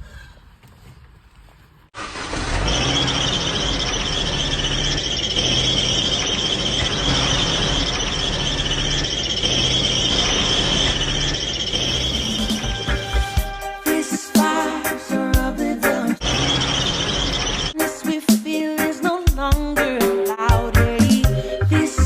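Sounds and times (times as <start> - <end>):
car high-pitched squeal: 2.0 - 15.0, 16.2 - 17.8.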